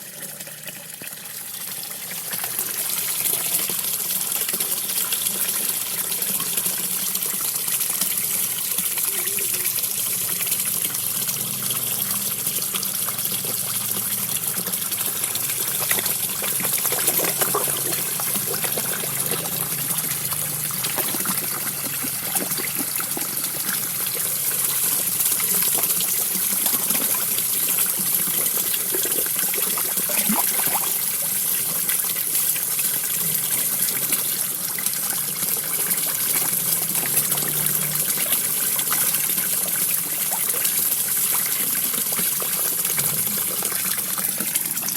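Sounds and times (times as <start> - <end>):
small waterfall trickling into pond: 0.0 - 44.9
fish splashing at surface: 14.6 - 31.7.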